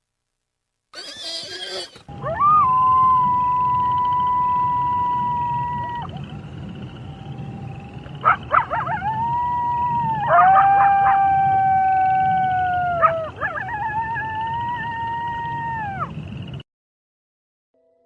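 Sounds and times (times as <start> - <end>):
wolf yips: 1.0 - 2.8, 8.2 - 9.3
wolves howling: 1.0 - 16.2.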